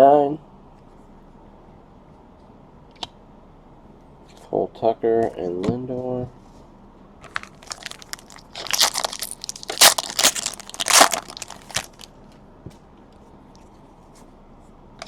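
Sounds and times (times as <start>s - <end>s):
card pack wrapper tearing: 7.3s - 12.1s.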